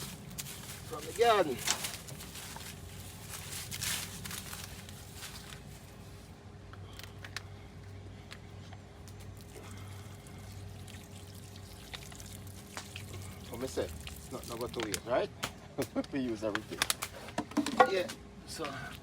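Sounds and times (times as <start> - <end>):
dirt rustling: 0.0 - 6.4
gritty dirt trickling: 0.0 - 7.2, 8.4 - 15.2
steady low hum: 0.0 - 19.0.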